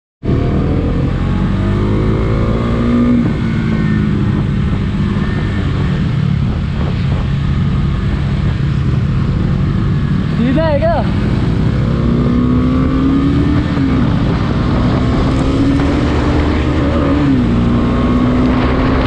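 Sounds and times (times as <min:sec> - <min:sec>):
motorcycle engine running: 0:00.2 - 0:19.0.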